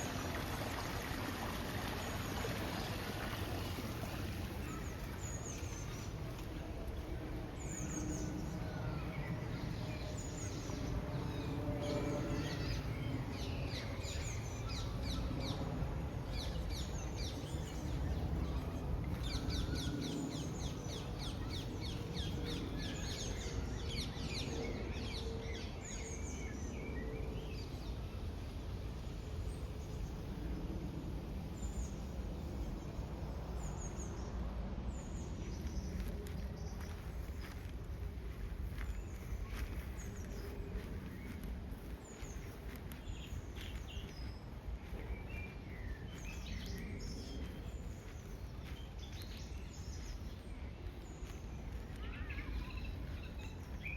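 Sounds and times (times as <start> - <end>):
small birds chirping: 1.4 - 23.7, 35.0 - 53.9.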